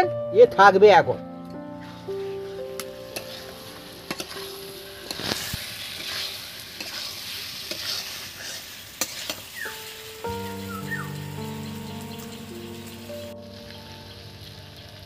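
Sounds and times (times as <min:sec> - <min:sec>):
background music: 0:00.0 - 0:07.2, 0:09.5 - 0:15.0
vegetables sizzling in a pan: 0:01.9 - 0:15.0
utensil scraping and clicking on pan: 0:04.1 - 0:09.5.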